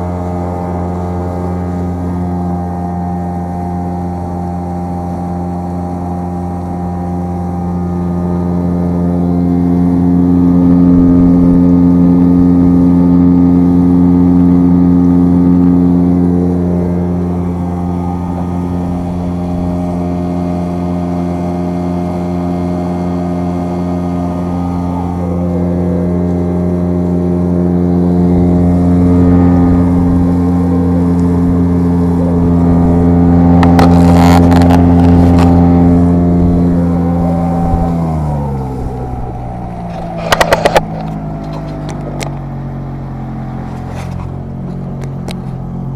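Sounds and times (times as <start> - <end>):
outboard motor running: 0.0 - 45.9.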